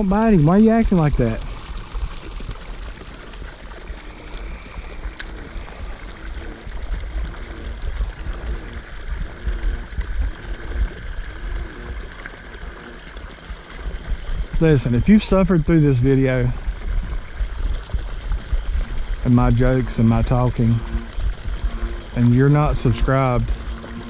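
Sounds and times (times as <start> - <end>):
water splashing into pond: 0.0 - 24.0
frog croaking: 18.4 - 24.0.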